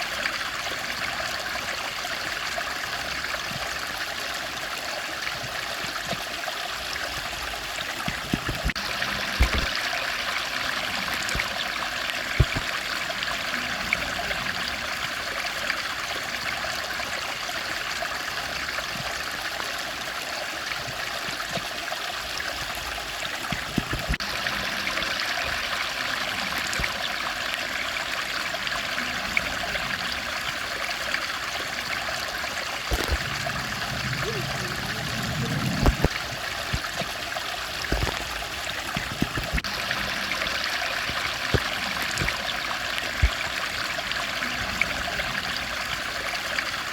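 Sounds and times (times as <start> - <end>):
stream flowing: 0.0 - 46.9
low thumps: 32.9 - 37.0.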